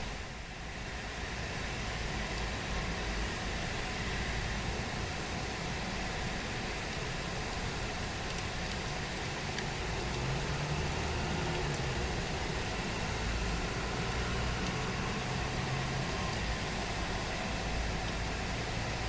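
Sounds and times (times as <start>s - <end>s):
steady rain falling: 0.0s - 19.0s
low vehicle engine hum: 7.5s - 19.0s.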